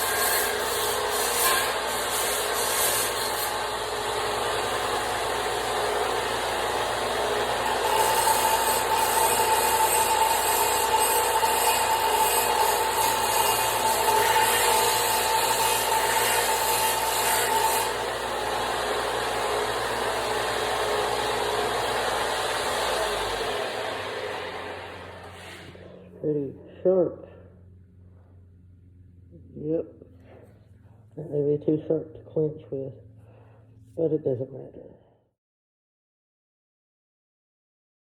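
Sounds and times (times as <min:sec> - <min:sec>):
power grinder grinding steel: 0:00.0 - 0:26.0.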